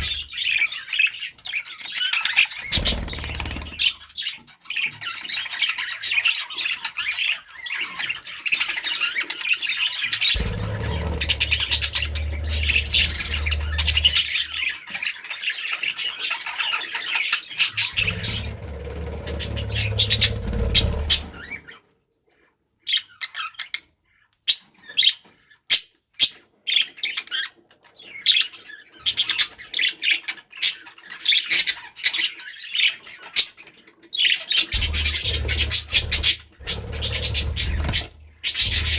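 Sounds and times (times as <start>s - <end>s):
budgerigars chattering and chirping: 0.0s - 38.9s
low hum: 10.4s - 14.6s, 34.8s - 38.9s.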